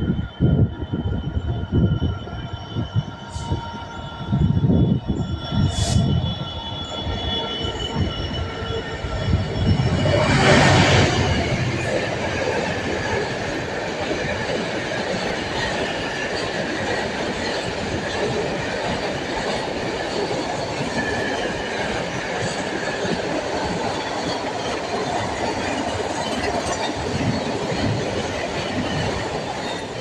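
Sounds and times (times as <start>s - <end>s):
train wheels rumbling on rail: 0.0s - 30.0s
faint high wheel squeal: 1.6s - 14.5s.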